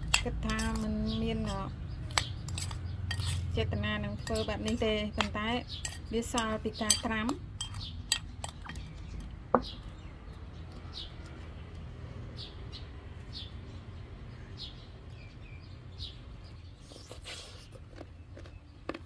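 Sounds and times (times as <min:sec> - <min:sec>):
metal spoon clinking on bowl: 0:00.0 - 0:03.5, 0:04.2 - 0:08.9
small bird chirping: 0:00.1 - 0:19.0.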